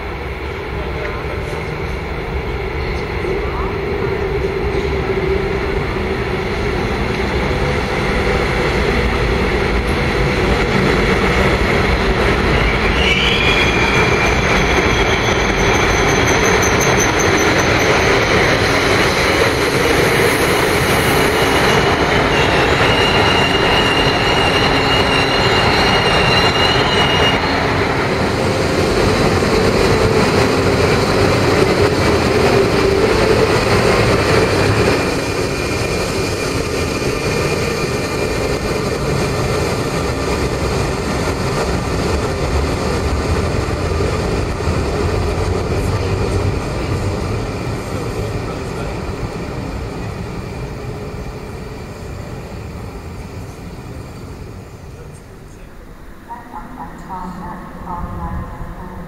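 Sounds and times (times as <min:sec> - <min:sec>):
electric train rumbling past: 0:00.0 - 0:59.0
high wheel squeal: 0:12.4 - 0:18.6, 0:20.9 - 0:28.2.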